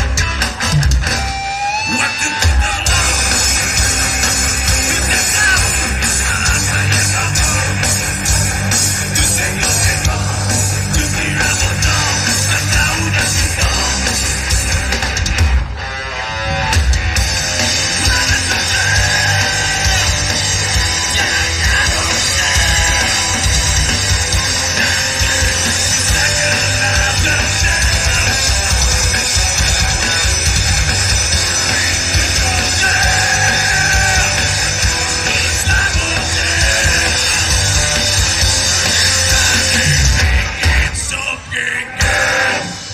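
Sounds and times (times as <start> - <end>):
drums: 0.0 - 42.9
electric guitars: 0.0 - 42.9
person yelling singing: 1.8 - 8.0, 9.0 - 14.2, 17.9 - 20.3, 21.1 - 23.5, 24.6 - 29.0, 31.4 - 37.9, 39.2 - 42.9.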